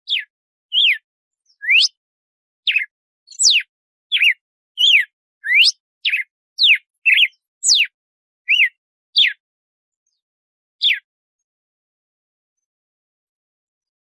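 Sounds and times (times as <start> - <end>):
bird whistling song: 0.0 - 2.0, 2.6 - 9.4, 10.8 - 11.1.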